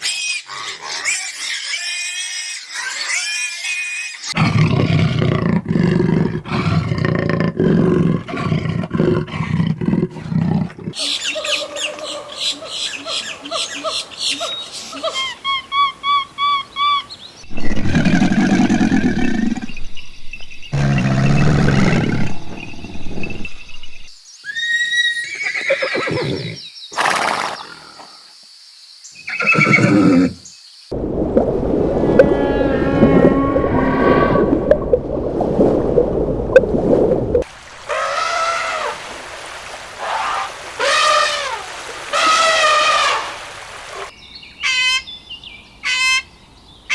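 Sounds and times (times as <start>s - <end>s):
large animal roaring: 4.4s - 11.0s, 17.5s - 19.7s, 20.7s - 23.6s, 31.8s - 34.8s
horse neighing: 24.5s - 27.7s, 29.3s - 30.4s.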